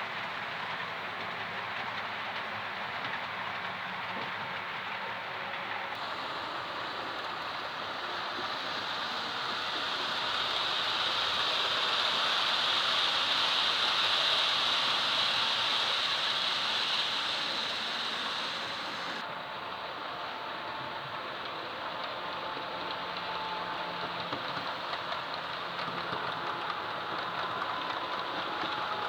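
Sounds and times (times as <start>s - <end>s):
model train wheels whirring: 0.0s - 29.0s.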